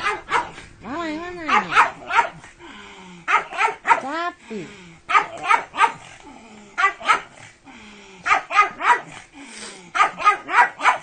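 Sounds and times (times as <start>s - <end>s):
dog barking: 0.0s - 0.6s, 1.4s - 2.5s, 3.3s - 4.1s, 5.1s - 6.1s, 6.8s - 7.4s, 8.2s - 9.2s, 9.9s - 11.0s.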